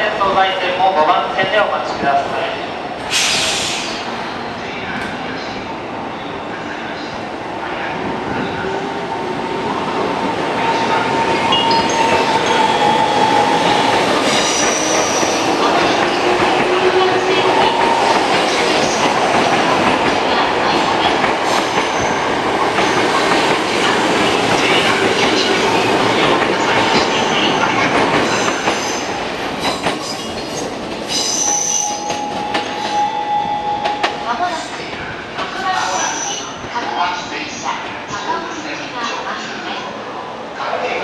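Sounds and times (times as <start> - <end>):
train wheels on rails: 8.2 - 36.8.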